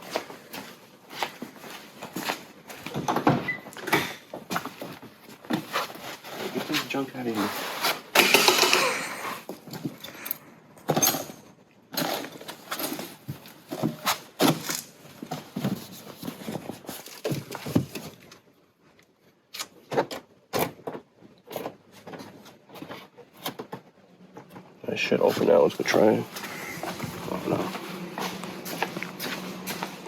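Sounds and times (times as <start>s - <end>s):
objects knocking and rattling: 8.1s - 10.1s.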